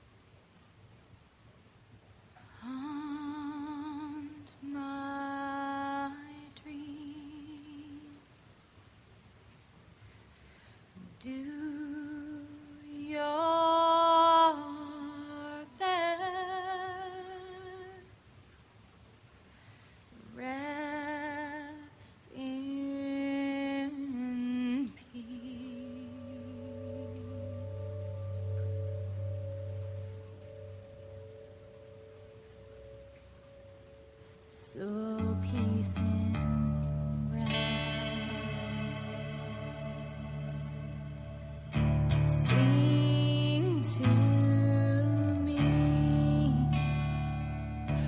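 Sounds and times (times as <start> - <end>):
low steady accompanying tone: 0.0 - 48.0
person singing long notes: 20.2 - 32.0, 34.5 - 48.0.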